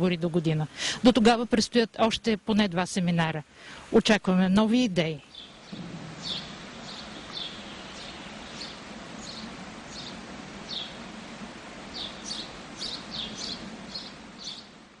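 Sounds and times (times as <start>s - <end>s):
outdoor background hiss: 0.0s - 15.0s
small birds chirping: 5.0s - 11.1s, 11.8s - 14.8s.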